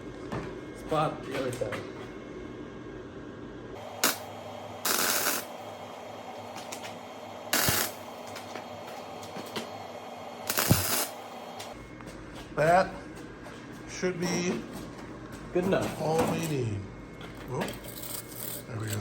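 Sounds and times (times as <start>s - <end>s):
welding arc bursts: 3.8s - 8.8s, 9.9s - 11.7s.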